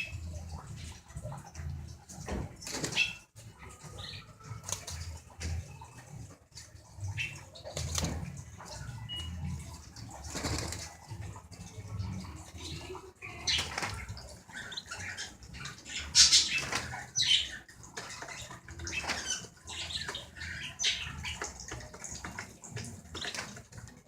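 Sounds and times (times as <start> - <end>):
birds flapping wings: 2.2 - 3.2, 7.2 - 8.8, 10.0 - 11.2, 13.4 - 15.0, 16.0 - 20.6, 21.2 - 24.0.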